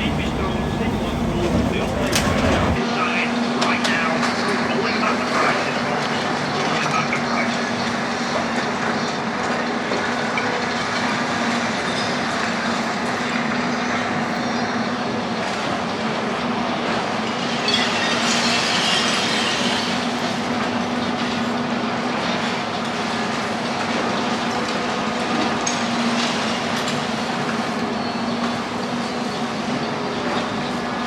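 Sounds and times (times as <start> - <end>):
excavator engine hum: 0.0 - 2.8
metallic clanking and grinding: 0.0 - 2.8.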